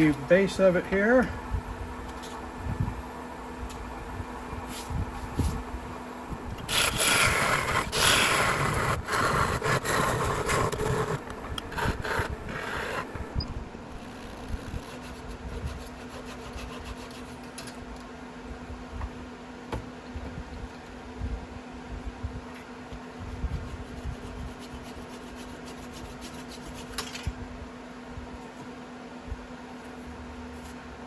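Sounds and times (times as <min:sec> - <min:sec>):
steady hum: 0:00.0 - 0:31.0
saw scraping through wood: 0:06.7 - 0:13.1.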